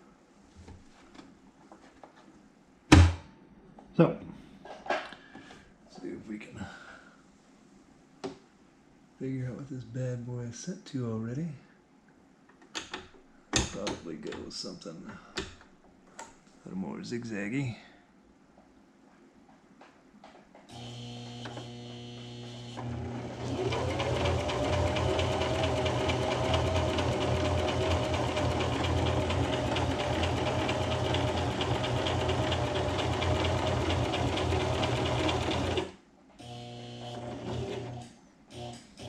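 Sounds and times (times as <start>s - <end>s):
sewing machine stitching: 20.7s - 38.8s.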